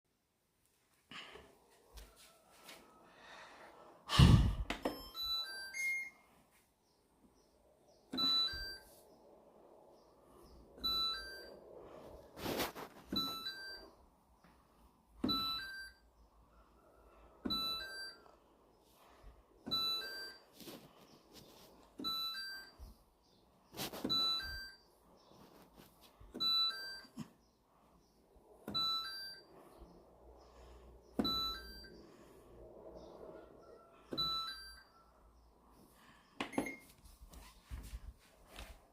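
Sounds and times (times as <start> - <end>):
short beeps: 10.8 - 11.5, 28.7 - 29.5, 31.2 - 31.9.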